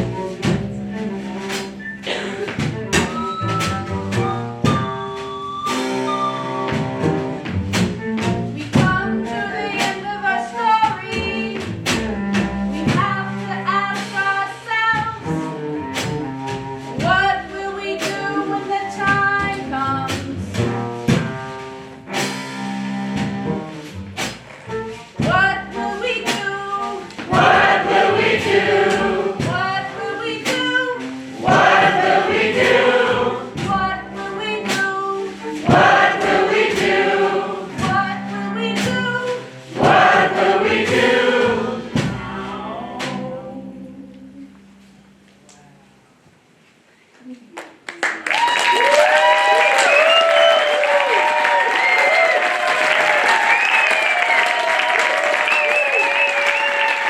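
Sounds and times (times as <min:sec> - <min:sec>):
choir singing: 0:27.3 - 0:34.0, 0:35.5 - 0:38.3, 0:39.0 - 0:44.5.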